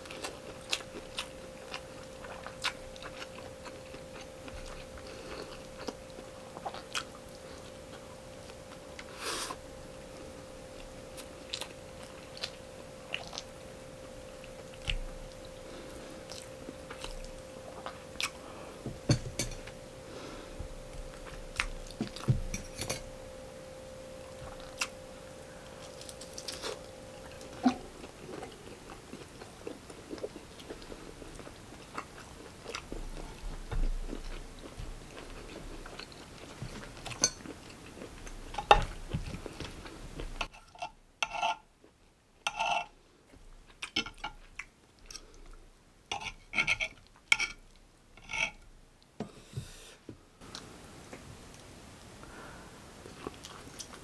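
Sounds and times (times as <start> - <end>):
cutlery clinking and scraping on plate: 40.4 - 41.6, 42.5 - 42.9, 46.1 - 47.6
chewing and mouth sounds: 53.0 - 54.0.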